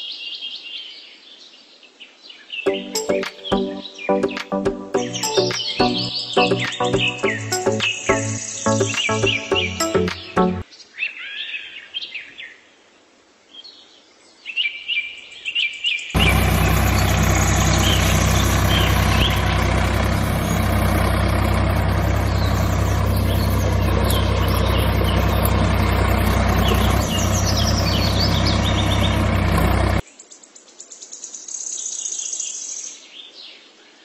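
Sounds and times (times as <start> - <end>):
birds chirping: 2.7 - 10.6, 16.2 - 30.0
tractor engine running: 2.7 - 10.6, 16.2 - 30.0.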